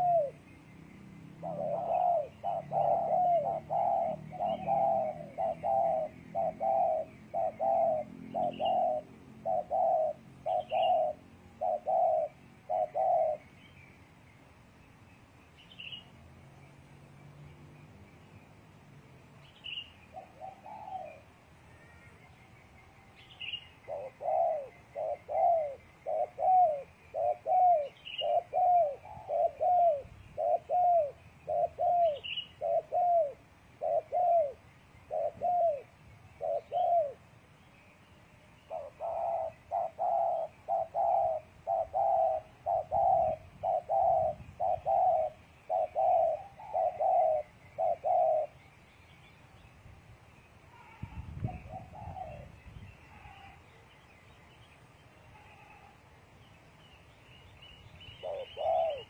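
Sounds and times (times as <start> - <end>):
doves cooing: 0.0 - 13.6, 20.0 - 22.3, 23.0 - 37.4, 38.7 - 48.7, 50.6 - 54.0, 58.2 - 59.0
faint high bird chirps: 19.4 - 59.0.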